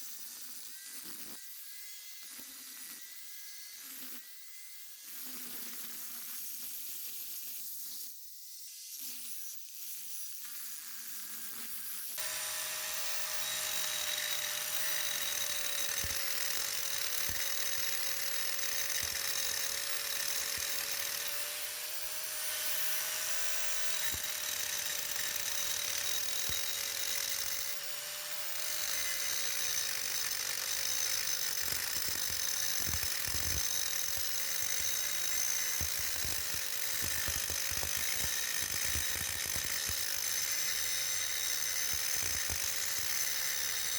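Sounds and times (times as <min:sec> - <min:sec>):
power grinder grinding metal: 0:10.8 - 0:43.9.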